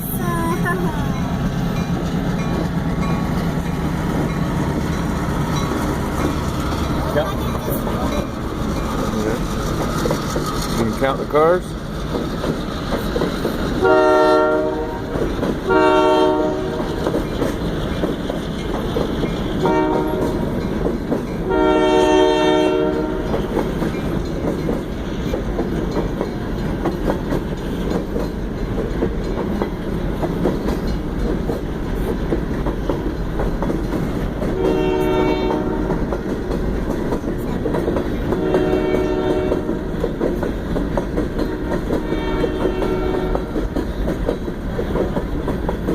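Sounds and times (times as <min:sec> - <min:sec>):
moving train noise: 0:00.0 - 0:45.9
locomotive horn blasts: 0:13.8 - 0:15.1, 0:15.7 - 0:16.9, 0:19.6 - 0:20.4, 0:21.5 - 0:23.3, 0:34.6 - 0:36.0, 0:38.4 - 0:39.8, 0:41.5 - 0:43.6.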